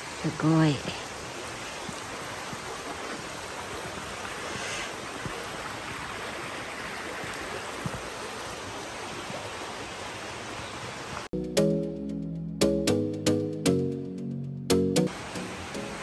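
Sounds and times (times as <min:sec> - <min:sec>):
stream water rushing: 0:00.0 - 0:11.3, 0:15.0 - 0:16.0.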